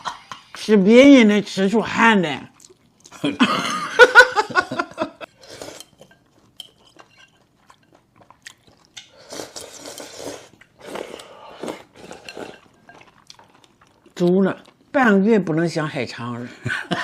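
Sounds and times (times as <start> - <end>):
person chewing: 2.5 - 3.4, 5.3 - 14.9
person slurping noodles: 5.4 - 6.0, 9.1 - 12.7
utensils clinking on dish: 5.7 - 8.0, 12.1 - 13.3.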